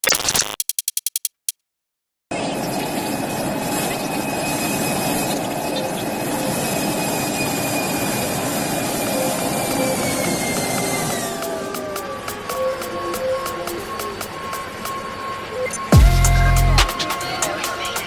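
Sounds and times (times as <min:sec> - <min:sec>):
jet engines running: 0:02.6 - 0:16.0.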